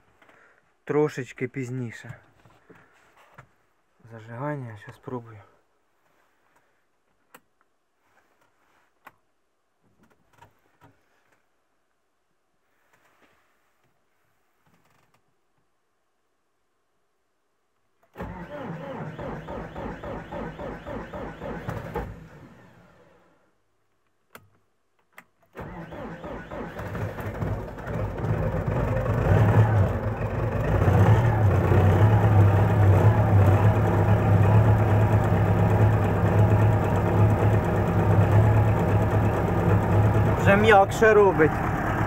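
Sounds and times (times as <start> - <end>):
diesel engine cranking and starting: 18.1 - 23.1, 25.5 - 42.0.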